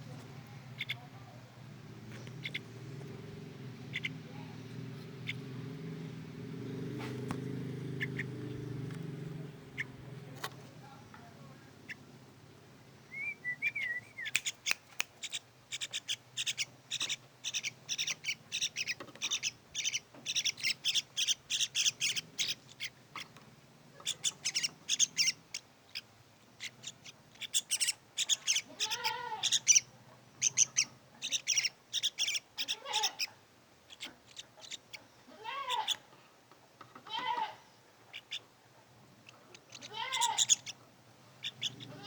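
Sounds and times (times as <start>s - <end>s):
birds chirping: 0.0s - 42.0s
lower arched bird call: 13.1s - 22.9s.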